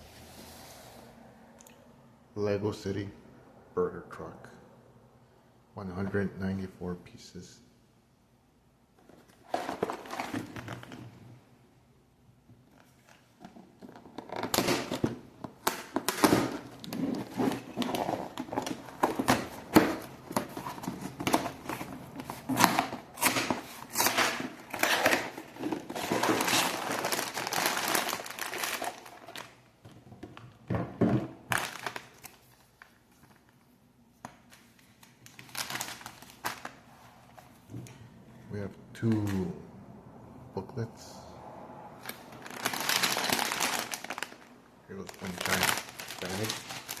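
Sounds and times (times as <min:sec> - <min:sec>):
plastic bags crinkling and tearing: 0:13.8 - 0:29.6, 0:31.4 - 0:33.6, 0:34.8 - 0:36.9, 0:42.0 - 0:47.0
cardboard box being opened: 0:16.2 - 0:29.4.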